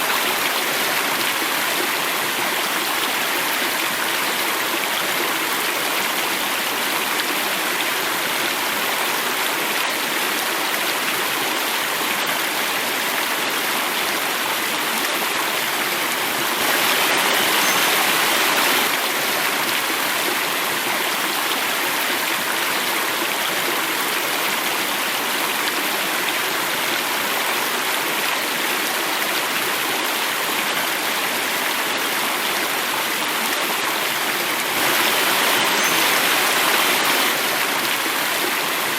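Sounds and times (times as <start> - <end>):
running water flowing: 0.0 - 38.9.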